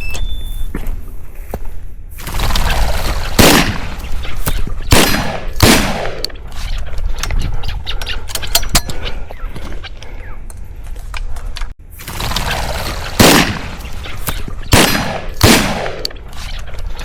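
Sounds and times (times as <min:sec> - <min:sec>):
low wind rumble: 0:00.0 - 0:17.0
shotgun blasts: 0:02.2 - 0:06.4, 0:12.0 - 0:16.6.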